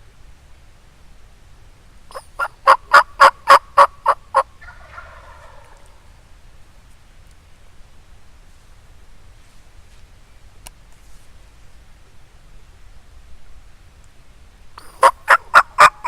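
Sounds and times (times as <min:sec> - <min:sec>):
turkey yelping: 0:02.1 - 0:06.0, 0:14.8 - 0:16.0
soft rough turkey call: 0:02.1 - 0:06.2, 0:14.8 - 0:16.0.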